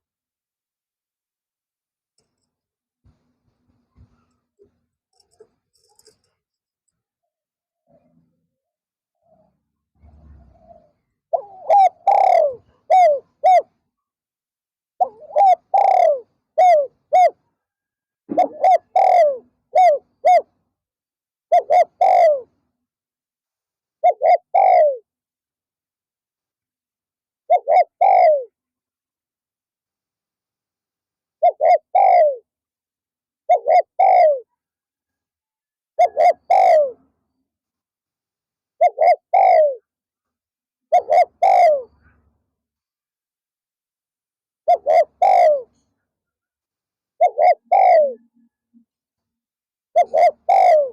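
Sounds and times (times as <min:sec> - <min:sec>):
doves cooing: 0:10.0 - 0:13.7, 0:15.0 - 0:17.4, 0:18.3 - 0:20.5, 0:21.5 - 0:22.5, 0:24.0 - 0:25.0, 0:27.5 - 0:28.5, 0:31.4 - 0:32.5, 0:33.5 - 0:34.5, 0:36.0 - 0:37.0, 0:38.8 - 0:39.8, 0:40.9 - 0:42.2, 0:44.7 - 0:45.8, 0:47.2 - 0:48.3, 0:50.0 - 0:50.9.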